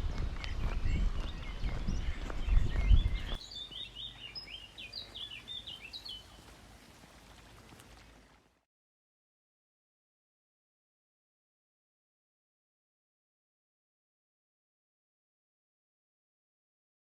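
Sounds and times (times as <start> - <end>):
footsteps on a path: 0.0 - 8.4
small birds chirping: 0.0 - 8.4.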